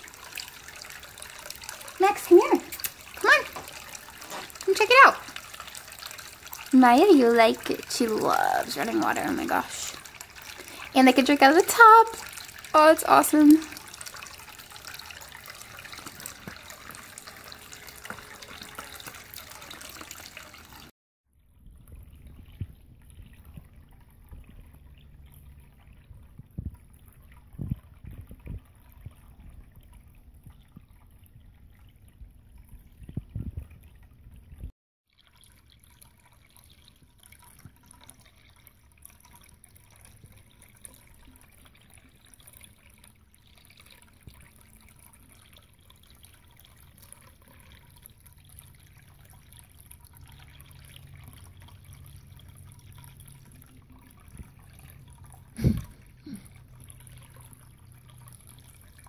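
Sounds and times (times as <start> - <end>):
water trickling and dripping: 0.0 - 59.0
low steady hum: 35.8 - 59.0.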